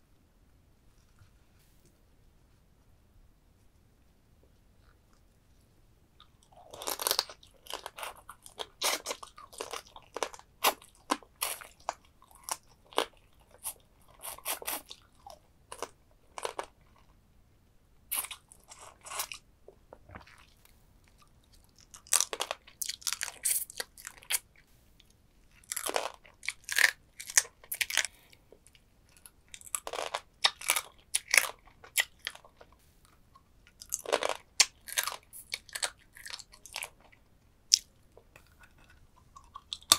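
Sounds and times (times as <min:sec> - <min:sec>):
crab shell crunching when chewed: 0:06.2 - 0:16.8, 0:20.2 - 0:24.5, 0:25.5 - 0:32.7, 0:33.7 - 0:39.9.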